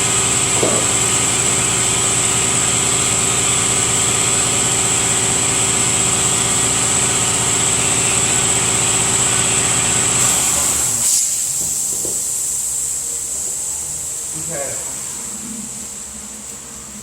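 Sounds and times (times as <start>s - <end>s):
air compressor running: 0.0s - 17.0s
air hissing: 10.0s - 16.6s.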